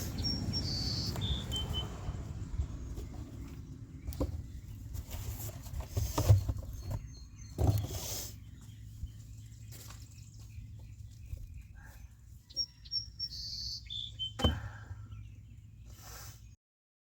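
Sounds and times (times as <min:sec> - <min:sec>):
high bird chirps: 0:00.0 - 0:02.2, 0:06.7 - 0:16.3.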